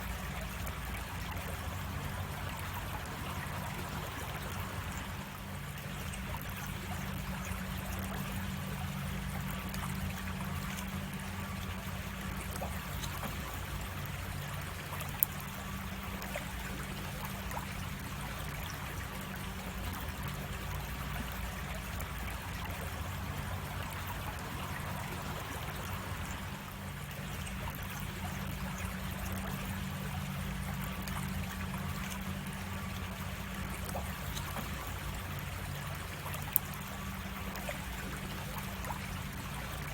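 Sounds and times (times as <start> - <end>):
creek water flowing over rocks: 0.0 - 39.9.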